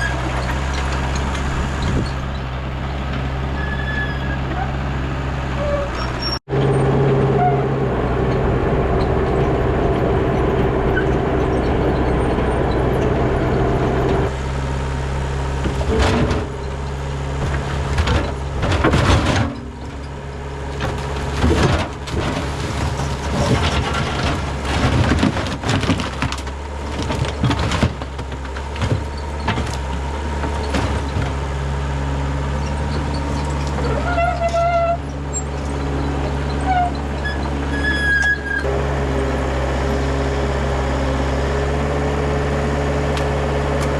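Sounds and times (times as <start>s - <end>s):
engine running: 0.0s - 43.9s
irregular knocks and clatter: 17.4s - 31.5s.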